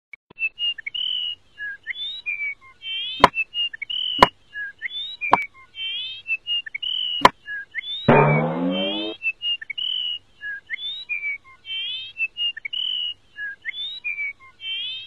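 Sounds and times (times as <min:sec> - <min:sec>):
birdsong of whistled chirps: 0:00.4 - 0:08.1, 0:09.0 - 0:15.0
sharp knocks: 0:08.1 - 0:09.1.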